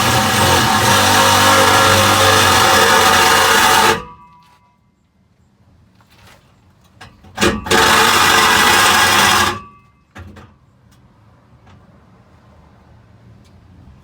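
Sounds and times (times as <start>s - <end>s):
power tool cutting pipe: 0.0s - 4.2s, 7.4s - 9.7s.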